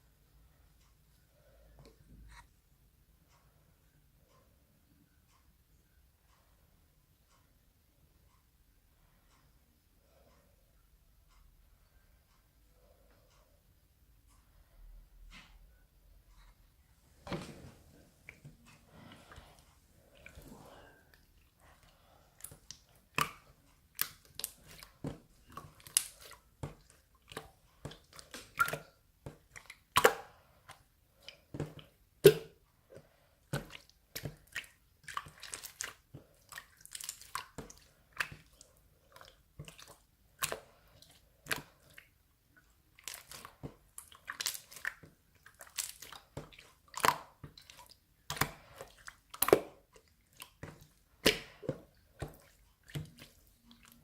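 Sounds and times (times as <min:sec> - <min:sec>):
wet slime squelches and clicks: 0:18.2 - 0:54.0.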